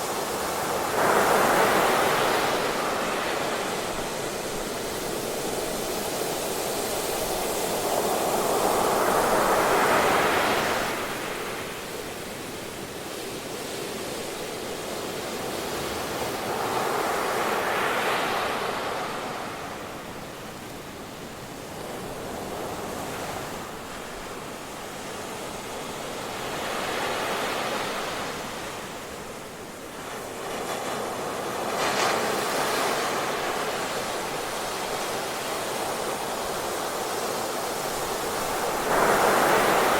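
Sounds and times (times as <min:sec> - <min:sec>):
ocean surf: 0:00.0 - 0:12.6, 0:21.8 - 0:39.9.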